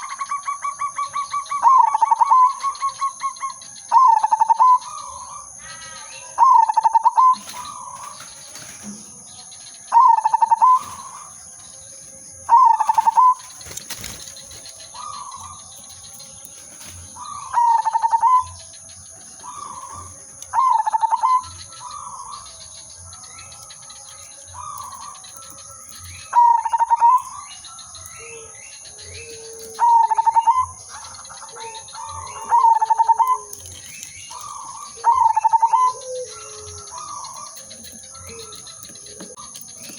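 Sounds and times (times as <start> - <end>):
dove cooing: 0.0 - 11.4, 12.5 - 39.9.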